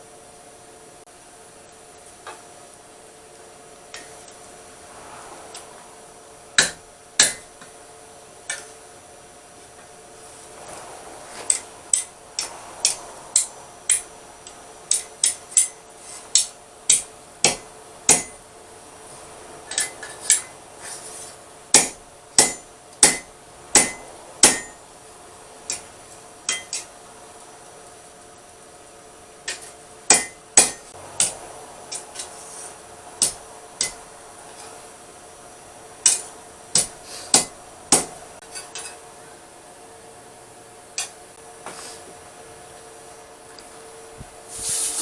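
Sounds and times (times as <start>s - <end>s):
faint steady hum: 0.0s - 45.0s
hammer striking steel on anvil: 6.6s - 7.8s, 11.4s - 14.1s, 14.8s - 18.4s, 19.7s - 20.6s, 21.7s - 24.8s, 25.7s - 25.9s, 26.5s - 26.9s, 29.5s - 32.4s, 33.2s - 34.1s, 36.0s - 39.0s.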